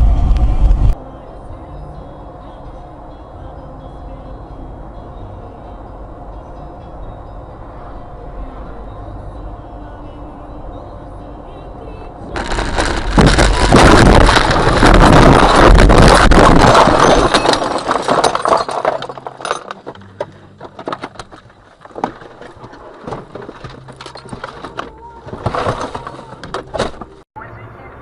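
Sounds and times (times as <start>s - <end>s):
car crash impact and scraping: 12.3s - 27.2s
debris clinking: 12.4s - 27.2s.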